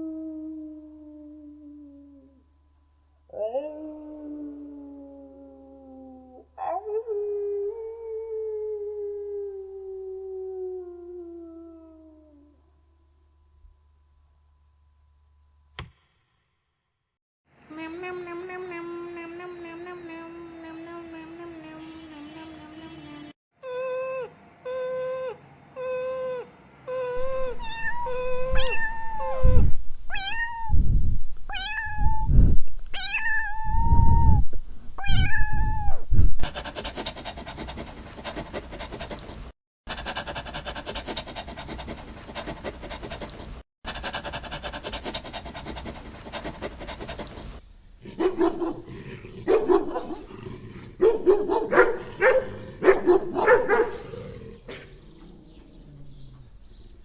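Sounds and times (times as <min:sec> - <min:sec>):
cats meowing: 0:27.1 - 0:30.8, 0:31.5 - 0:32.3, 0:33.0 - 0:34.3, 0:35.0 - 0:36.0.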